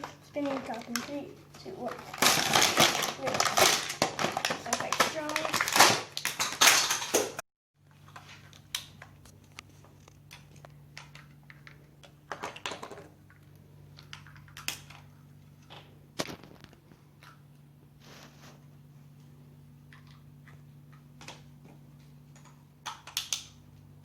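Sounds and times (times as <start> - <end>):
plastic toy and packaging clicks: 0.0 - 7.4, 8.0 - 17.4, 22.4 - 23.6
steady low hum: 7.8 - 24.0.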